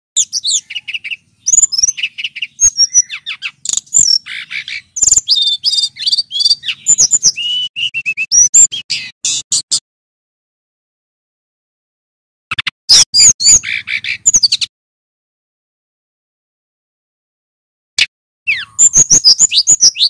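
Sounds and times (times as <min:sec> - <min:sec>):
flycatcher singing: 0:00.2 - 0:09.4, 0:13.0 - 0:14.7, 0:18.5 - 0:20.0.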